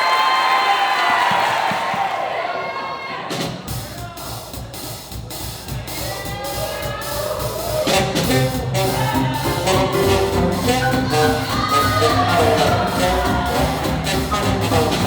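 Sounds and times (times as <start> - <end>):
drums steady beat: 3.3 - 15.0
swing jazz band playing: 5.2 - 15.0
horns playing: 7.8 - 15.0.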